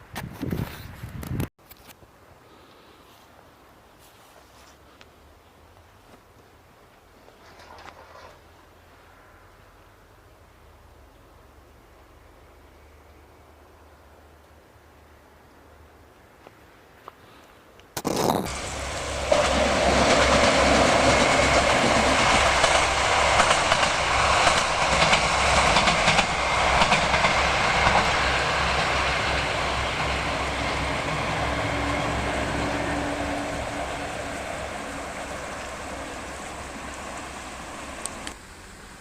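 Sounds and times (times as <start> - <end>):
diesel train passing: 8.7 - 14.3, 18.5 - 39.0
wheels clattering over rail joints: 18.1 - 32.2.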